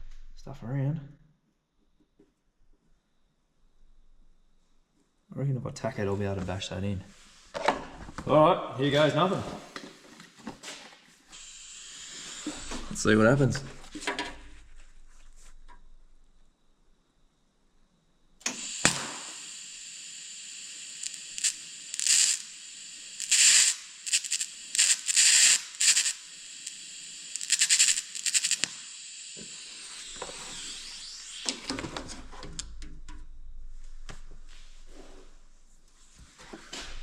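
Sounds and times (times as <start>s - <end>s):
welding arc hissing: 11.3s - 13.8s, 18.4s - 32.8s
welding arc striking click: 18.4s - 33.2s.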